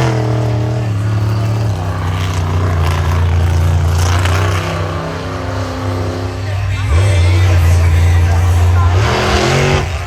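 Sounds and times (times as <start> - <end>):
truck engine revving loud: 0.0 - 10.0.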